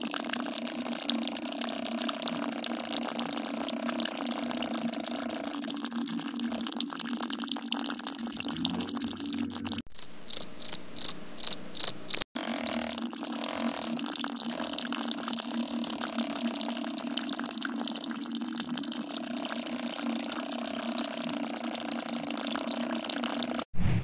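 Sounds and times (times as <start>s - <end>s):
high-pitched chirping: 9.9s - 12.2s.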